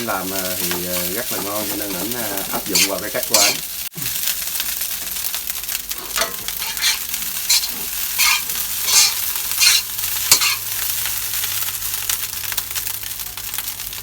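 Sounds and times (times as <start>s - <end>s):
rice sizzling in a pan: 0.0s - 14.0s
utensil scraping a pan: 2.6s - 3.6s, 6.0s - 10.7s.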